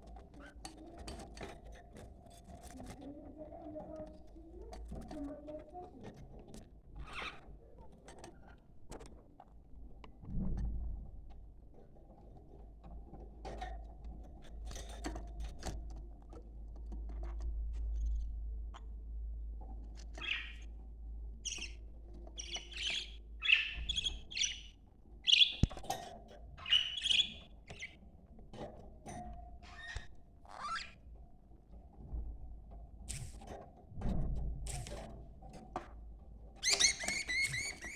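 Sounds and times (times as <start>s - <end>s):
budgerigars chirping: 20.2s - 20.6s, 21.4s - 21.8s, 22.4s - 25.7s, 26.6s - 27.9s, 36.6s - 37.9s.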